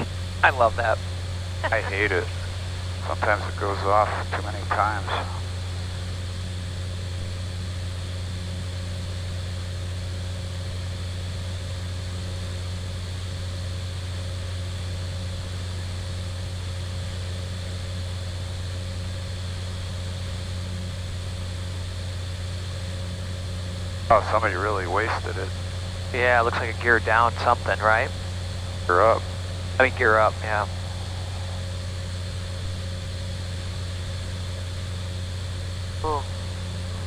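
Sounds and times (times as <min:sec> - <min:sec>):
turboprop engine drone: 0:00.0 - 0:37.0.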